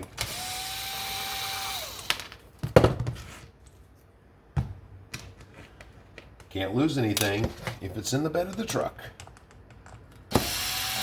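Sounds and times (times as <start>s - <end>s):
small electric motor whirring: 0.2s - 2.1s, 10.3s - 11.0s.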